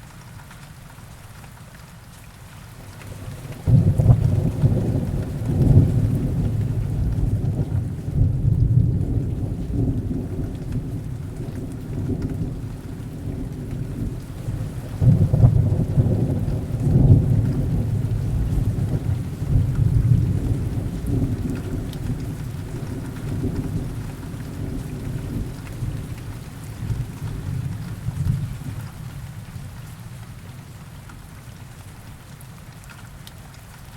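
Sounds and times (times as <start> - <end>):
heavy rain: 0.0 - 33.9
low rolling thunder: 3.2 - 29.7.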